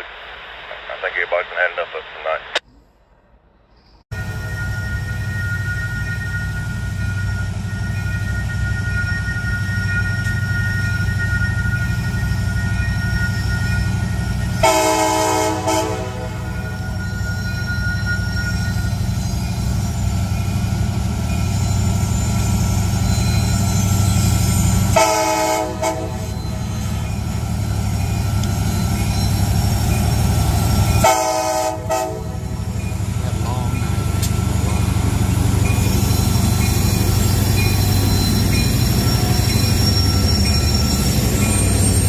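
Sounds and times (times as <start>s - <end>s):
locomotive engine rumbling: 4.2s - 42.0s
air horn blasts: 14.6s - 16.6s, 25.0s - 26.4s, 31.0s - 32.4s.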